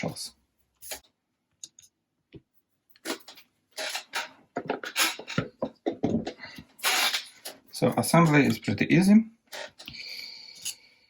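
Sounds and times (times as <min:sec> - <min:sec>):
parts clattering and rustling: 0:00.8 - 0:08.6.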